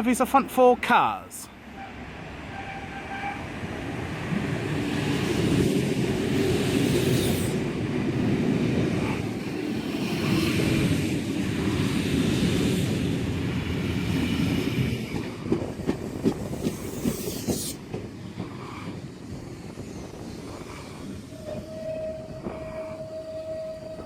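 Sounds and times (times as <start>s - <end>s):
train rumbling into platform: 1.5s - 24.0s
train wheels clicking over rail joints: 9.2s - 23.0s
high hiss from train: 16.3s - 24.0s.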